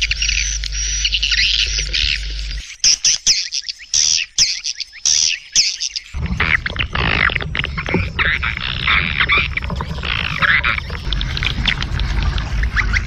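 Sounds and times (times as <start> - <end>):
low steady hum: 0.0 - 2.6, 6.2 - 13.0
swiftlets twittering: 0.0 - 13.0.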